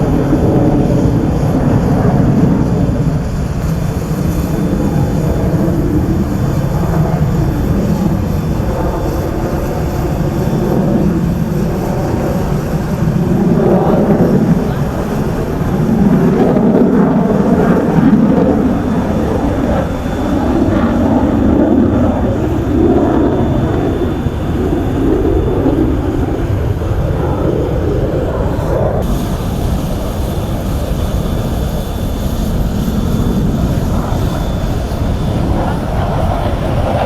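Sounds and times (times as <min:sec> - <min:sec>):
jet engine rumble: 0:00.0 - 0:37.0.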